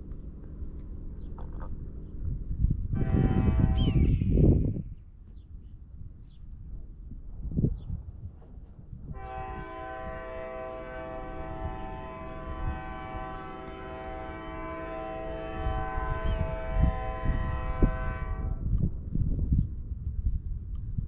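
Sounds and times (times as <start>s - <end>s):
low rumble: 0.0s - 21.0s
locomotive air horn chord: 3.0s - 4.1s, 9.1s - 18.6s.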